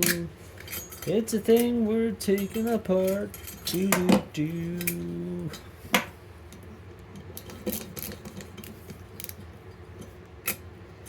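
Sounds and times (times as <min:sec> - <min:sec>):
metallic clicks and clinks: 0:00.0 - 0:05.6.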